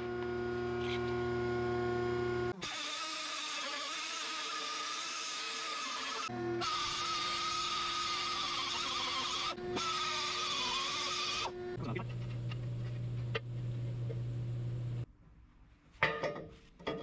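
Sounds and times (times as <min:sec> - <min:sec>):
low machine hum: 0:11.6 - 0:15.1.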